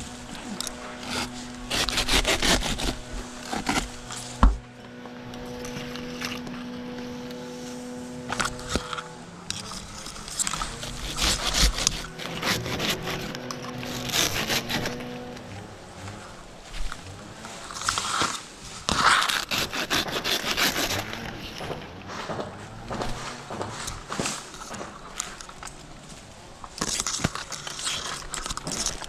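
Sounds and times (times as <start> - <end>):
handsaw rasping: 0.0 - 4.6, 5.3 - 22.4
steady low hum: 0.0 - 26.8.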